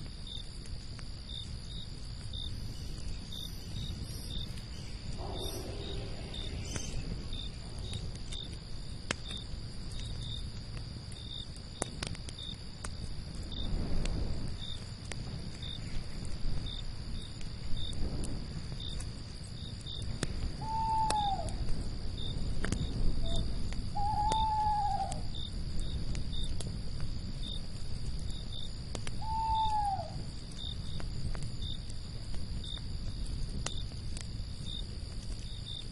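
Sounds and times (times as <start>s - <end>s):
campfire crackling and popping: 0.0s - 35.9s
crickets chirping: 0.0s - 35.9s
owl hooting: 5.1s - 7.0s, 20.6s - 21.6s, 23.2s - 25.3s, 29.2s - 30.2s.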